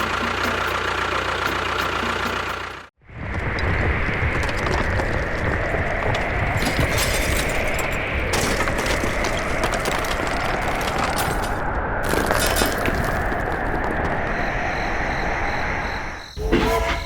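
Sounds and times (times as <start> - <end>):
crackling and crunching: 3.2 - 14.4.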